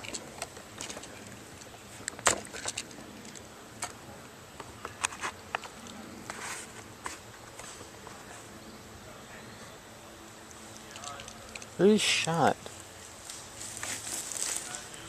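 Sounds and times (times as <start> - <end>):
footsteps in dry leaves: 12.9 - 15.0.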